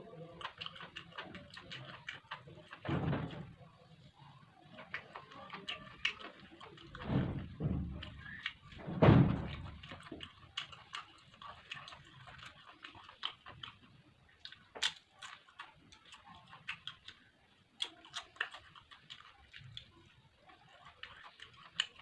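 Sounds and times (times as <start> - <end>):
heavy thump: 8.9 - 9.6.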